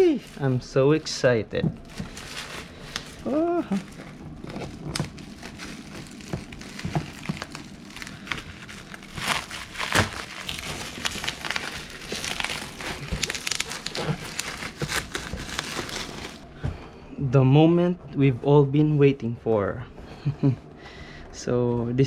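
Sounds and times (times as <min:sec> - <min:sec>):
packaging crinkling and rustling: 0:00.0 - 0:16.5.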